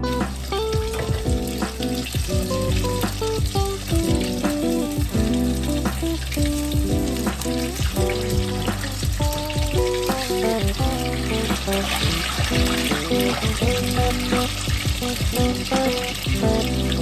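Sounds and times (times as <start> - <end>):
food sizzling in hot oil: 0.0 - 17.0
soft background music: 0.0 - 17.0.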